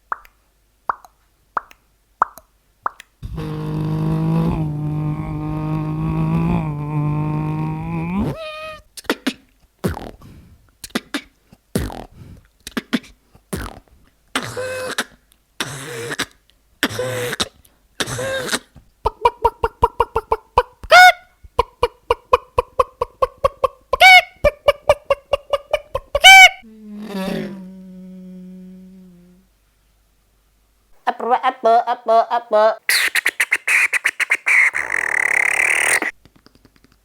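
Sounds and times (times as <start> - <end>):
mouth clicks and pops: 0.0 - 8.4, 9.0 - 24.6, 32.9 - 37.0
fast mouth clicking: 0.1 - 3.2, 10.8 - 13.9, 35.8 - 37.0
hummed tone: 3.2 - 8.4, 26.7 - 29.4.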